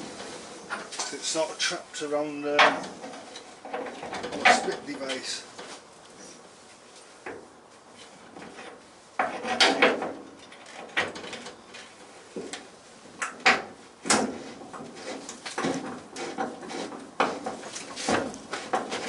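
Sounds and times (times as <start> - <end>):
metal clunks and knocks: 2.5 - 4.9, 8.3 - 11.6, 13.3 - 19.0.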